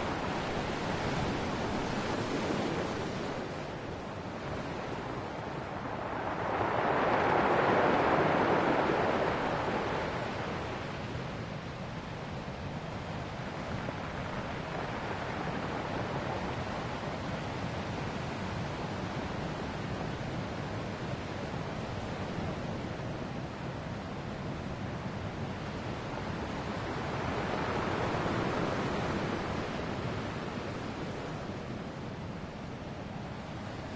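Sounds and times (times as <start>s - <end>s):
ocean waves breaking on shore: 0.0s - 33.9s.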